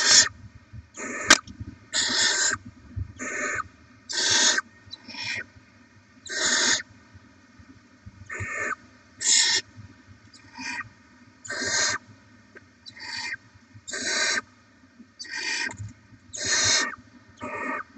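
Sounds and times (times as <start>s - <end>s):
owl nestlings hissing begging calls: 0.0s - 0.3s, 1.0s - 2.6s, 3.2s - 5.5s, 6.2s - 6.9s, 8.3s - 9.7s, 10.3s - 12.0s, 12.8s - 14.5s, 15.2s - 17.9s
sharp click: 1.3s - 1.6s.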